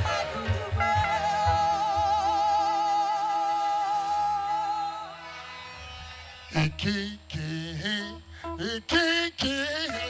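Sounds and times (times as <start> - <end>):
drum beats: 0.0 - 3.1
live gospel band: 0.0 - 10.0.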